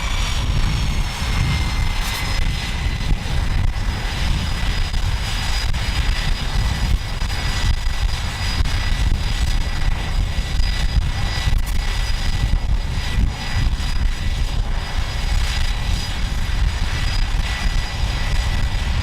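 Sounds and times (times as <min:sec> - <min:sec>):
jet engines whining: 0:00.0 - 0:19.0.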